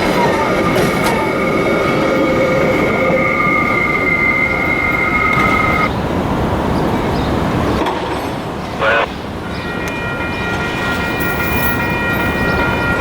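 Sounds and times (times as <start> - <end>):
train wheels squealing: 0.0 - 5.9, 9.5 - 13.0
train cars rumbling: 0.0 - 13.0.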